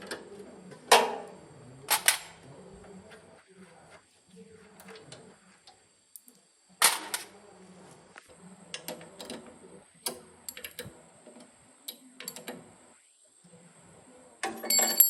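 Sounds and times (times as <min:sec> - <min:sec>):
hand tools clicking and clinking: 0:14.4 - 0:15.0.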